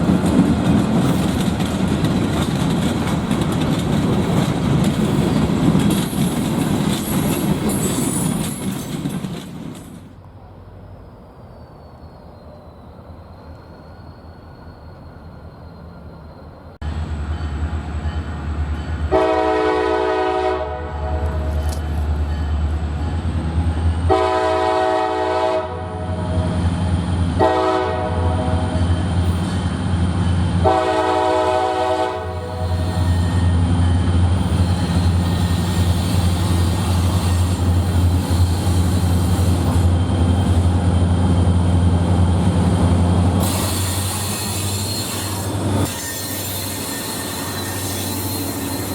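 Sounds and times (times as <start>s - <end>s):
train wheels squealing: 4.0s - 19.1s, 28.5s - 30.5s, 32.1s - 41.2s, 42.6s - 48.9s
train horn blasts: 17.2s - 23.2s, 24.0s - 26.5s, 27.4s - 28.9s, 30.6s - 33.7s.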